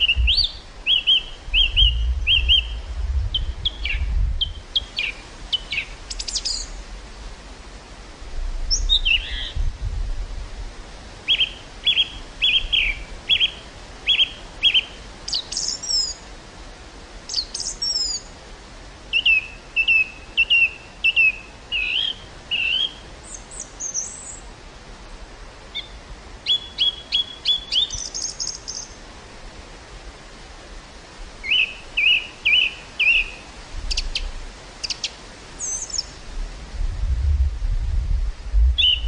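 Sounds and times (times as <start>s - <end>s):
small birds chirping: 0.0s - 6.8s, 8.7s - 9.6s, 11.3s - 16.2s, 17.3s - 18.3s, 19.1s - 24.5s, 25.7s - 29.0s, 31.4s - 36.2s, 38.8s - 39.0s
low wind rumble: 0.0s - 15.3s, 29.0s - 39.0s
wind hissing: 0.0s - 26.5s, 27.5s - 39.0s.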